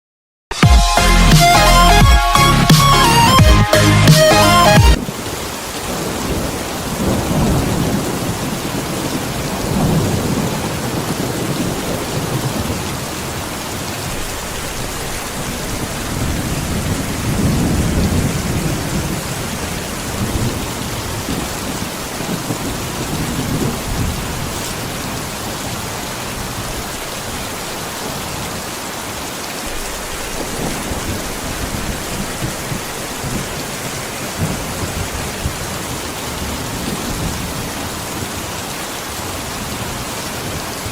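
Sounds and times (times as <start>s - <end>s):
heavy rain falling: 0.6s - 40.9s
thunder rumbling: 4.8s - 26.7s, 29.7s - 38.4s.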